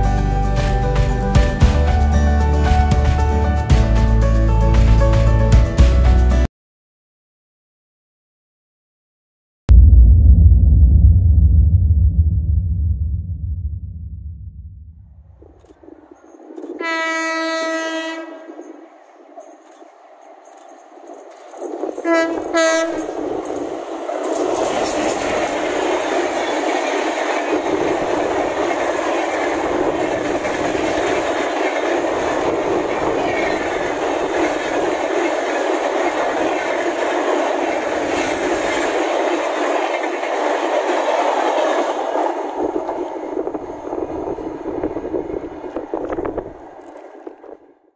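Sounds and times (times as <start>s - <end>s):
train rolling past at speed: 15.2s - 47.8s
wheels clacking on rail joints: 18.2s - 43.2s.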